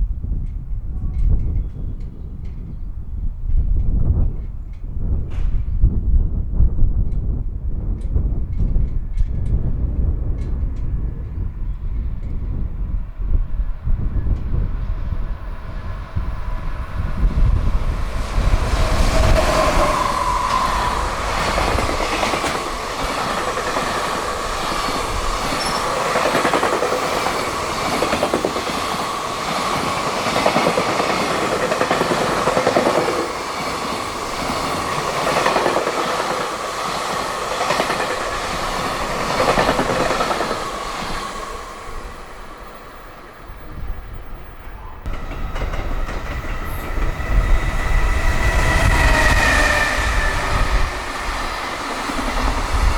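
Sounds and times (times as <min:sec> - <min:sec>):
freight train passing: 0:00.0 - 0:52.9
wheels clacking over rail joints: 0:17.2 - 0:43.1, 0:45.0 - 0:52.9.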